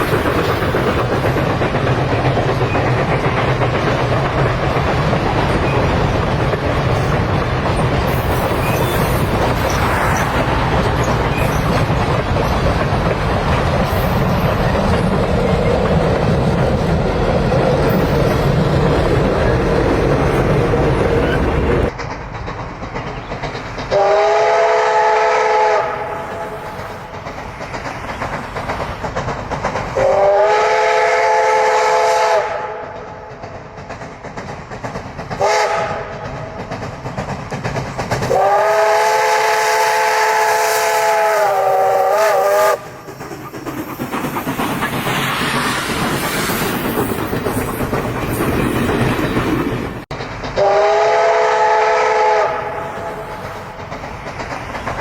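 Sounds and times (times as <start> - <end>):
steam hiss: 0.0 - 32.4, 33.0 - 55.0
rail clickety-clack: 0.0 - 55.0
steam locomotive whistle blasts: 23.9 - 26.7, 30.0 - 33.0, 35.4 - 36.2, 38.3 - 43.0, 50.6 - 53.3.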